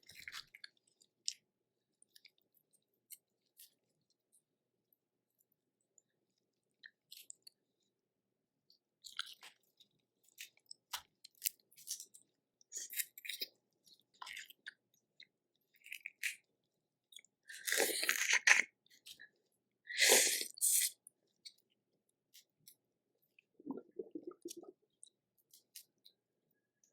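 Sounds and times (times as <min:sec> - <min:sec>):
chewing shellfish: 0:00.0 - 0:01.4, 0:09.0 - 0:16.5, 0:17.1 - 0:21.7.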